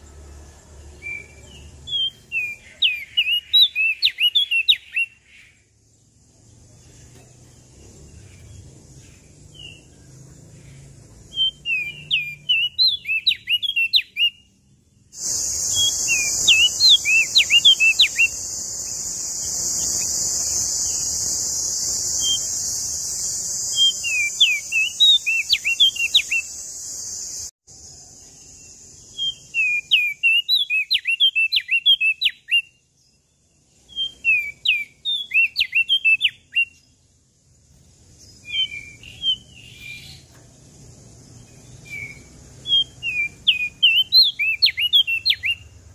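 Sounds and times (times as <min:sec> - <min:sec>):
songbird whistling: 0:01.0 - 0:05.6, 0:11.3 - 0:27.5, 0:29.0 - 0:32.9, 0:33.8 - 0:36.8, 0:38.4 - 0:40.3, 0:41.5 - 0:45.7
steady high hiss: 0:15.1 - 0:29.9.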